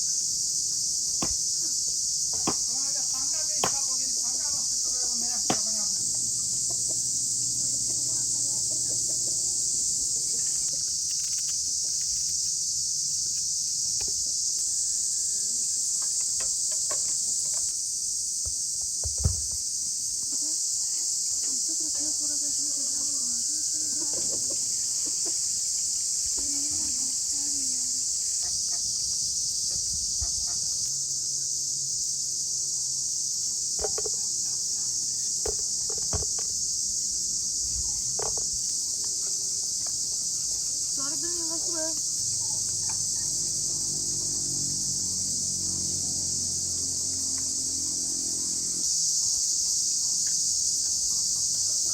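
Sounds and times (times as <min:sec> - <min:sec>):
high-pitched insect chorus: 0:00.0 - 0:51.9.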